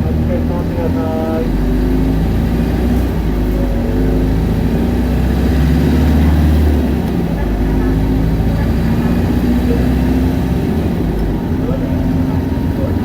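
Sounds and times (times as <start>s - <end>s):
bus diesel engine running: 0.0s - 13.0s
deep low drone: 0.0s - 13.0s.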